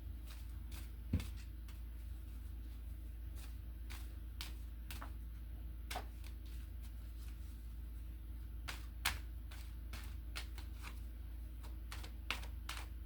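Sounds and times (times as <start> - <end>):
room heater humming: 0.0 - 13.0
tarot cards shuffling: 3.3 - 5.2, 8.6 - 13.0.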